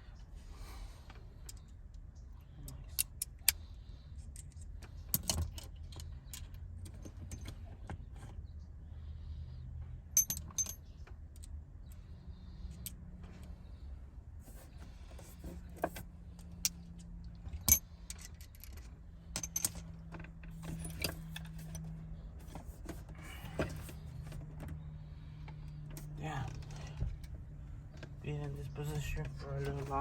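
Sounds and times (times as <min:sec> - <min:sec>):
metal tools clinking: 0:10.2 - 0:10.9, 0:17.5 - 0:19.9.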